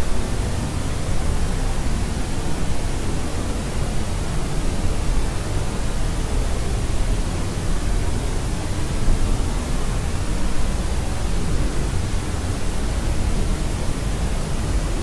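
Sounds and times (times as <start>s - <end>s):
steady white noise: 0.0s - 15.0s.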